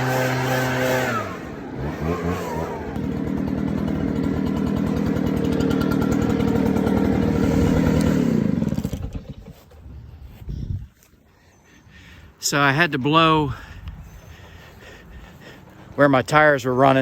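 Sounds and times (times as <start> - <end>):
leaf blower engine: 0.0 - 10.4.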